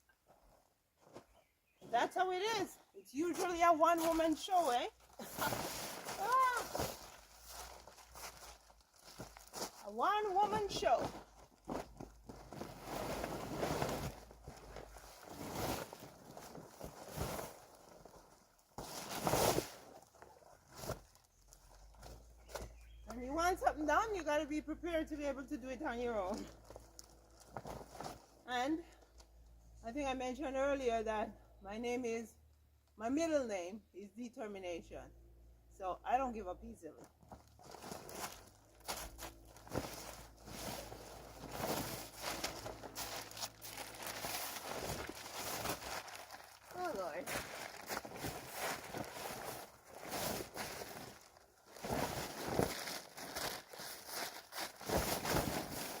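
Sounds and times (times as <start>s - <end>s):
plastic sheet rustling and crinkling: 3.3s - 22.7s, 25.8s - 29.1s, 37.0s - 56.0s.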